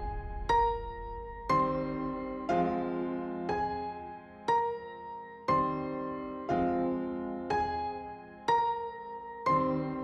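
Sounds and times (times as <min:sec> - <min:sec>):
soft slow piano chords: 0:00.0 - 0:10.0.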